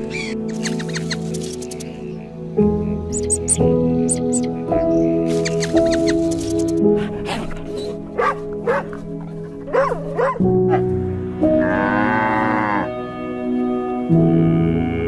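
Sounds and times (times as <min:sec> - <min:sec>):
farm animal calls: 0:00.0 - 0:02.1, 0:03.1 - 0:06.8
background music: 0:00.0 - 0:15.0.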